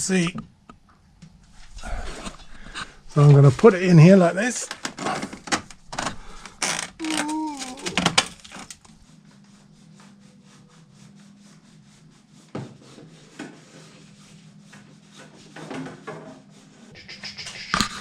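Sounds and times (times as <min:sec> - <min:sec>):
low steady hum: 0:01.4 - 0:09.1
plastic pipe scraping: 0:01.6 - 0:09.0
faint rapid scratching: 0:01.6 - 0:12.4, 0:16.5 - 0:18.0.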